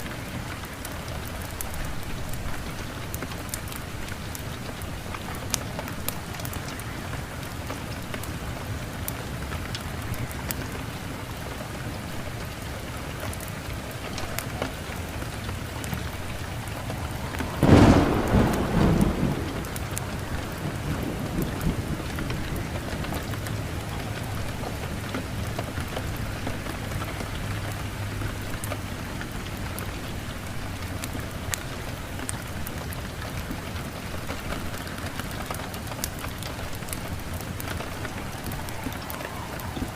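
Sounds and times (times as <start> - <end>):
steady rain falling: 0.0 - 39.9
thunderclap: 14.4 - 26.2, 36.1 - 39.9.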